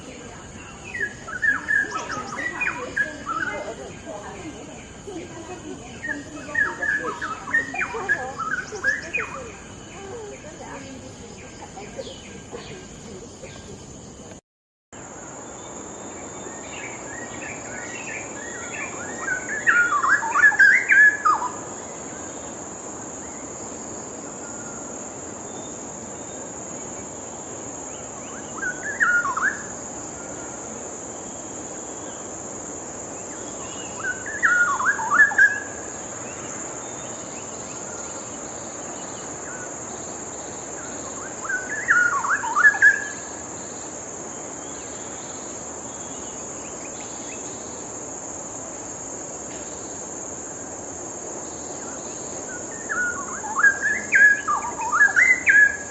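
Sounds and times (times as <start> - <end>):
high-pitched insect drone: 0.0 - 14.4.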